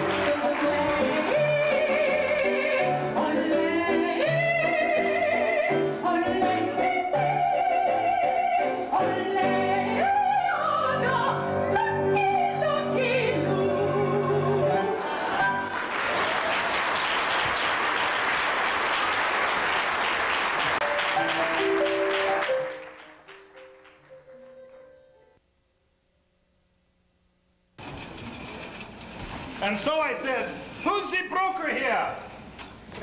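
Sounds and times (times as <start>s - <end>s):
audience applause: 0.0s - 2.6s, 15.1s - 24.3s
person singing operatically: 0.0s - 14.8s
instrumental accompaniment: 20.8s - 25.4s.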